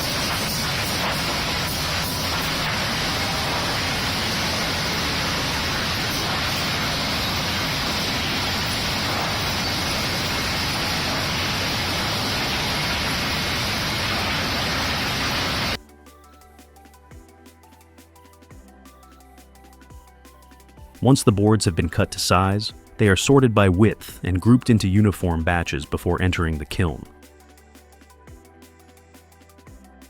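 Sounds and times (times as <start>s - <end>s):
sawmill machinery running: 0.0s - 15.8s.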